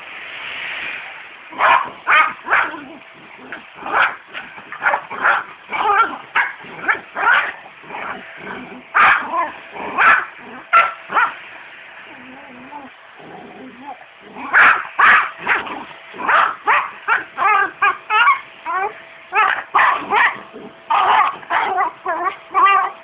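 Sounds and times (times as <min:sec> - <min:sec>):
dog barking: 0:01.6 - 0:02.9, 0:03.8 - 0:08.2, 0:09.0 - 0:11.4, 0:14.5 - 0:18.4, 0:19.4 - 0:22.9.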